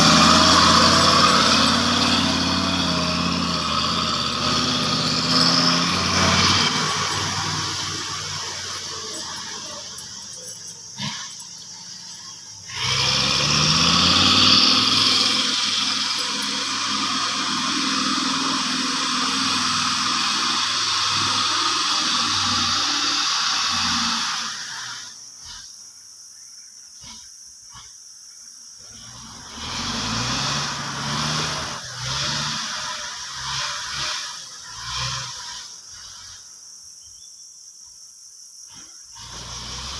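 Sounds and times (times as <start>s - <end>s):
diesel truck engine revving: 0.0s - 25.7s, 28.8s - 36.6s, 38.7s - 39.9s
strong hiss: 0.0s - 25.8s
hiss: 11.0s - 26.0s, 26.9s - 36.8s, 37.9s - 39.9s.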